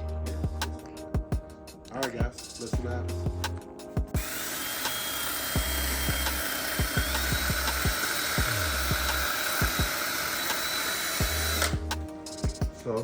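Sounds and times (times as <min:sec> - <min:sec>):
music with deep drum beat: 0:00.0 - 0:04.4, 0:05.5 - 0:10.6, 0:11.2 - 0:13.0
power drill whining: 0:04.2 - 0:11.9.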